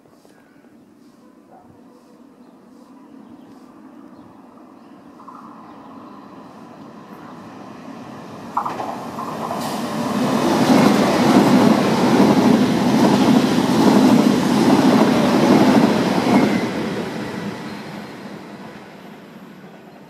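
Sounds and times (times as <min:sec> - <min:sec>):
train rushing past at speed: 0:04.5 - 0:20.0
sharp clack: 0:08.5 - 0:10.0.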